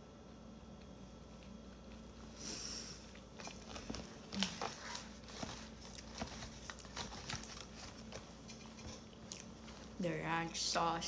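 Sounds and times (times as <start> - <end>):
person chewing: 5.7 - 10.0.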